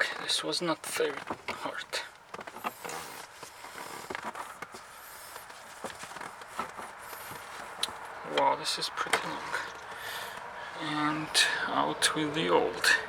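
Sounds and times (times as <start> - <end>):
scraping and rustling plastic: 0.0 - 7.8.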